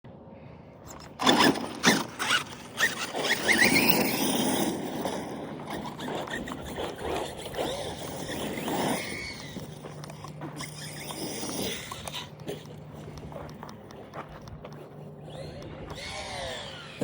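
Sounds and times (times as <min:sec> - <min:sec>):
wavering squeal: 0:00.9 - 0:12.4
tyres scraping: 0:00.9 - 0:17.0.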